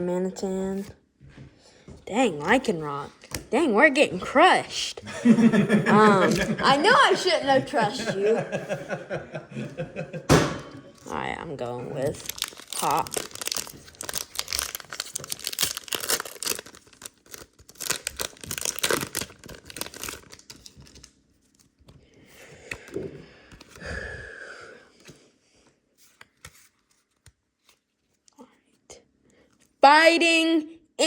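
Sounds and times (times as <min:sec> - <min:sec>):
foil wrapper tearing and crinkling: 0:11.9 - 0:21.7.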